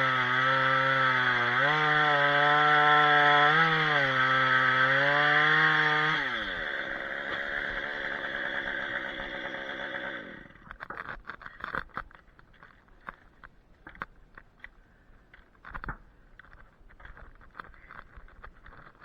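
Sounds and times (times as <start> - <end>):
chainsaw running: 0.0 - 10.8
faint clicks and rustling: 10.6 - 19.0.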